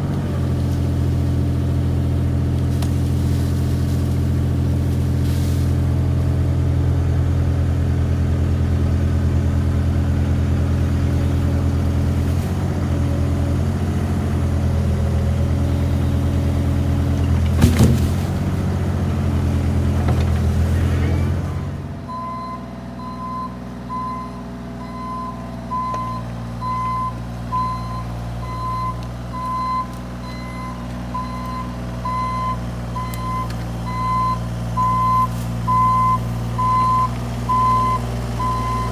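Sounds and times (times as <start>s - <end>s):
diesel engine running: 0.0s - 38.9s
reversing alarm beeping: 22.1s - 38.9s.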